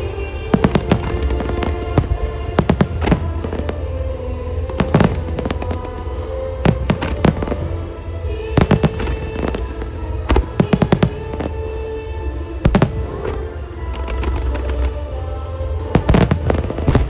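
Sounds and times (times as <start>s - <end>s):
firework shells bursting: 0.5s - 11.7s, 12.7s - 13.3s, 16.0s - 17.0s.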